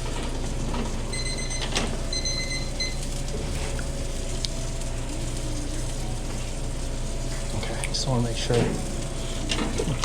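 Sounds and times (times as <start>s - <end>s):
electronic timer beeping: 1.1s - 3.0s.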